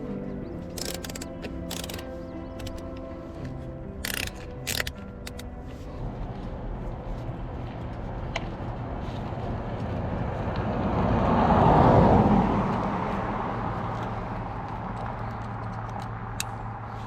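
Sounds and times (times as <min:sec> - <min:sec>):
car passing close by: 0:08.8 - 0:15.2.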